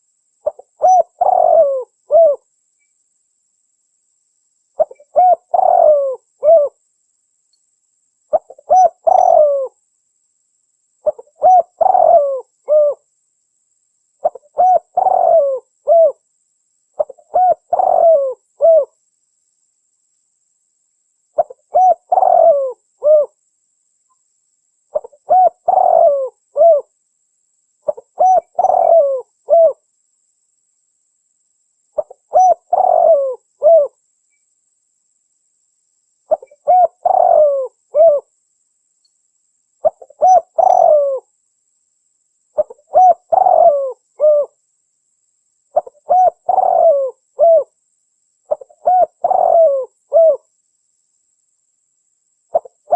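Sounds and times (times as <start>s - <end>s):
dove cooing: 0.4s - 2.4s, 4.8s - 6.8s, 8.3s - 9.8s, 11.0s - 13.0s, 14.2s - 16.2s, 17.0s - 19.0s, 21.4s - 23.4s, 24.9s - 26.9s, 27.8s - 29.8s, 32.0s - 34.0s, 36.3s - 38.3s, 39.8s - 41.3s, 42.6s - 44.6s, 45.7s - 47.8s, 48.5s - 50.5s, 52.5s - 52.9s.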